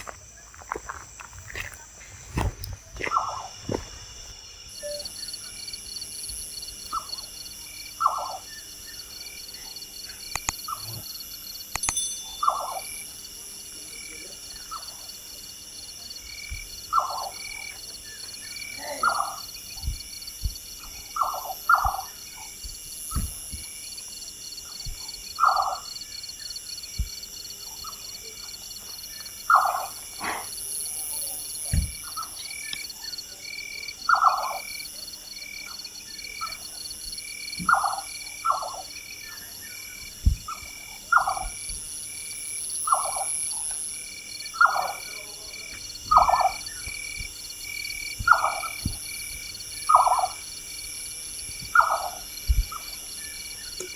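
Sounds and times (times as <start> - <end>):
pulsing insect chirr: 0.0 - 53.9
nightjar quavering call: 8.0 - 9.2, 18.5 - 19.5, 29.5 - 30.0, 34.0 - 34.6, 37.7 - 41.5, 42.9 - 43.3, 44.5 - 45.2, 46.1 - 47.0, 48.2 - 48.8, 49.8 - 50.5, 51.7 - 53.9.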